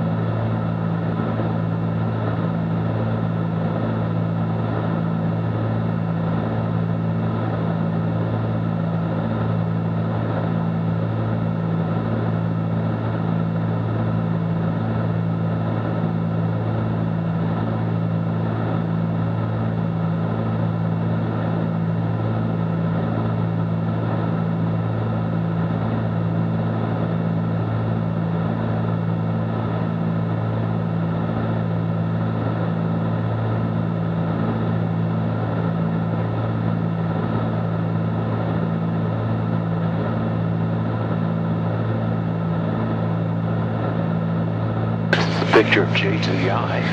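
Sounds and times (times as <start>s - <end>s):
aircraft engines droning: 44.6s - 46.9s.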